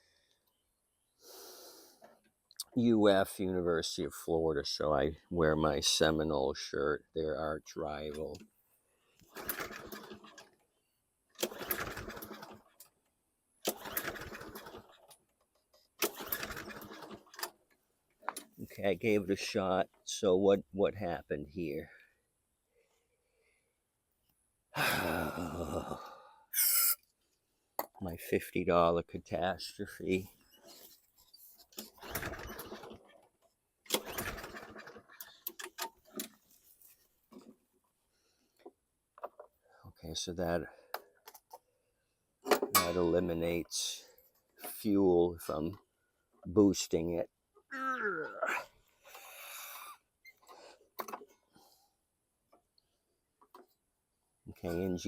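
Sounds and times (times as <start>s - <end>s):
lawn mower recoil starter pulls: 9.2s - 10.6s, 11.3s - 12.9s, 13.6s - 15.3s, 16.0s - 17.7s, 30.5s - 36.4s.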